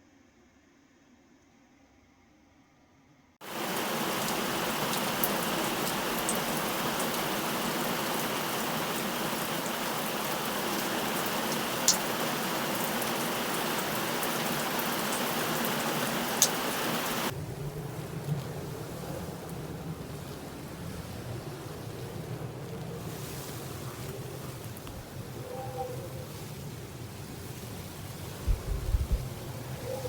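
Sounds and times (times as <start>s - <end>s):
heavy rain falling: 3.4s - 25.3s
raindrops striking close by: 3.4s - 25.4s.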